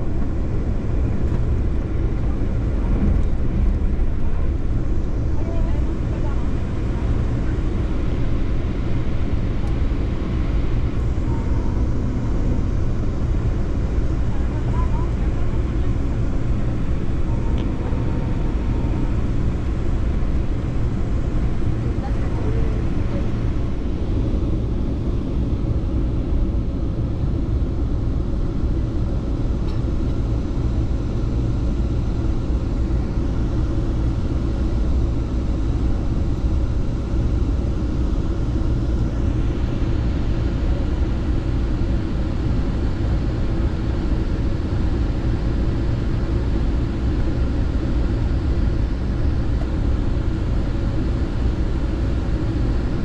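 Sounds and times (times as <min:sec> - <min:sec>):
train rumbling on track: 0:00.0 - 0:42.1.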